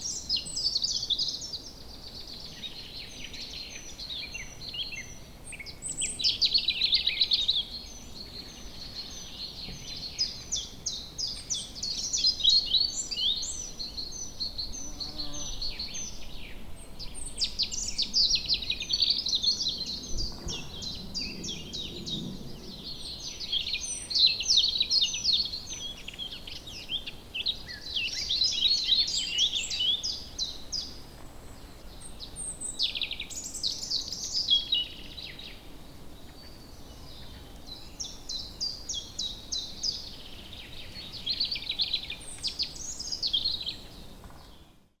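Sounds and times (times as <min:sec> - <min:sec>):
songbirds singing and chirping: 0:00.0 - 0:45.0.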